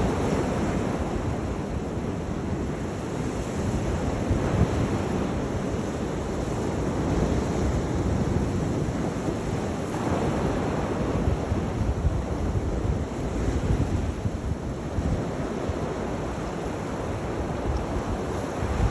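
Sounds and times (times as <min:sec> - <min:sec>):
sea waves surging: 0:00.0 - 0:18.9
wind buffeting microphone: 0:00.0 - 0:18.9.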